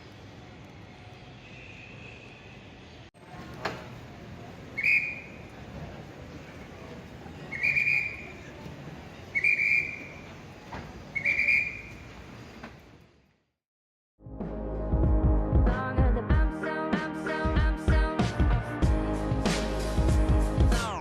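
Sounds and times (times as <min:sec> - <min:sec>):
shrill whistle blasts: 0:04.8 - 0:05.4, 0:07.5 - 0:08.3, 0:09.3 - 0:10.2, 0:11.1 - 0:12.0.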